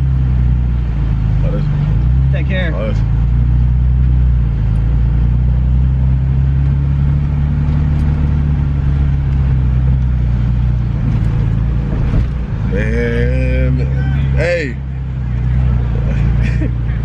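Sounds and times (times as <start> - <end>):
car engine running at low revs: 0.0 - 17.0.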